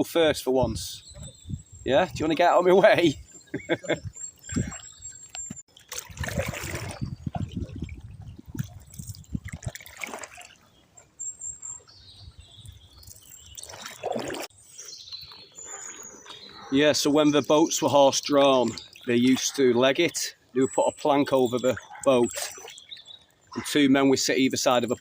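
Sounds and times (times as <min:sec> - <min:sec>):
paddle splashing in water: 0:05.7 - 0:10.8, 0:13.3 - 0:14.5
water dripping off paddle: 0:12.6 - 0:14.5, 0:17.7 - 0:20.2, 0:21.2 - 0:23.6.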